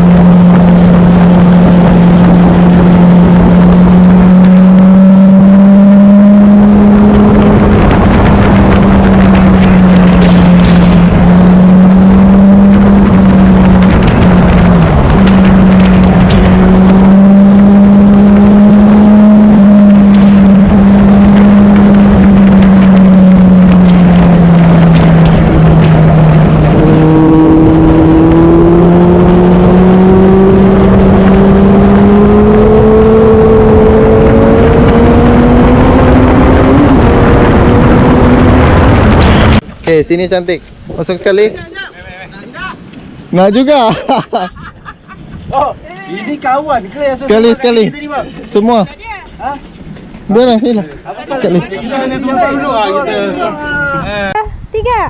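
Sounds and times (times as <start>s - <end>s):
motorcycle engine cruising: 0.0s - 40.3s
rushing wind noise: 0.0s - 55.0s.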